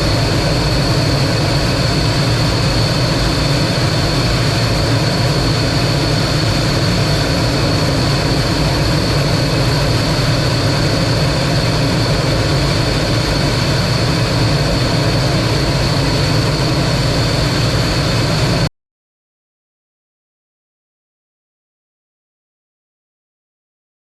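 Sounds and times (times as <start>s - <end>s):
jet engine high whine: 0.0s - 18.7s
jet engine rumble: 0.0s - 18.7s.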